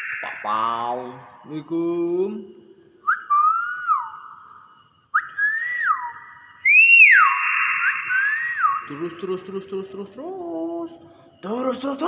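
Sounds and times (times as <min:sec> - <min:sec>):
myna bird whistling: 0:03.0 - 0:09.2.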